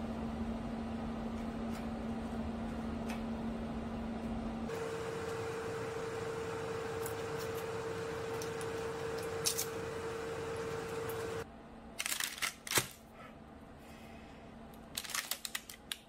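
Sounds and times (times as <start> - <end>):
kitchen appliance fan humming: 0.0 - 11.5
parchment paper crinkling: 14.9 - 16.0.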